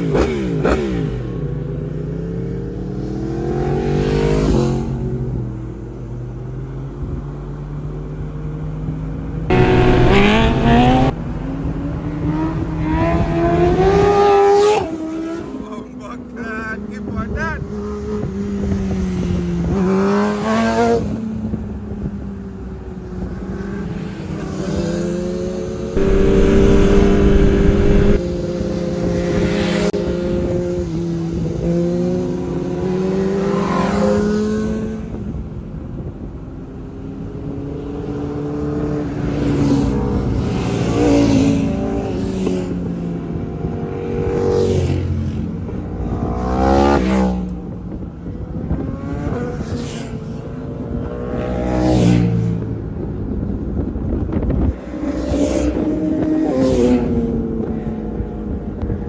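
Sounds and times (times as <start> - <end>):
motorcycles revving and passing: 0.0 - 5.2, 9.5 - 15.7, 22.5 - 28.2, 54.7 - 59.0.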